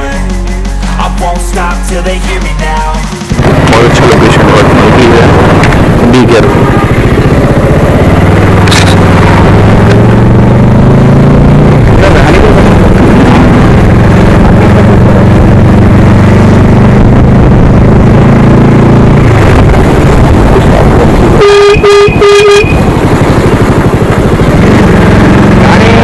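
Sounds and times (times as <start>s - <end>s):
motorcycle engine running: 0.0s - 26.0s
road noise: 2.2s - 26.0s
wind noise: 3.3s - 25.7s
vehicle horn toots: 21.3s - 23.0s.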